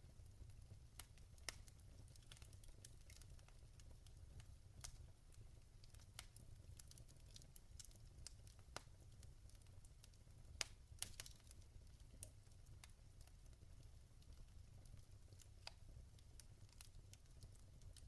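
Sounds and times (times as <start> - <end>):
burning logs crackling: 0.1 - 18.0.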